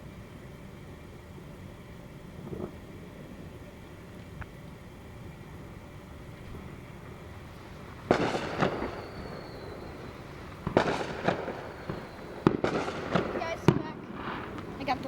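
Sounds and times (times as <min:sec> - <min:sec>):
fireworks crackling: 0:00.0 - 0:15.0
fireworks bangs: 0:06.3 - 0:15.0.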